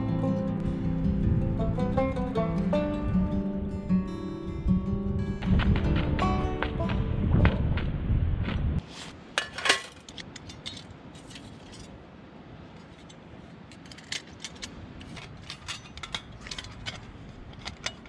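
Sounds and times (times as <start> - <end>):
low steady hiss: 8.8 - 18.0.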